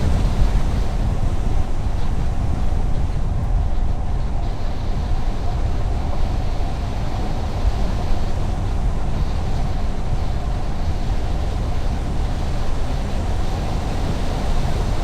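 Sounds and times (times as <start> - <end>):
car road and tyre noise: 0.0 - 15.0.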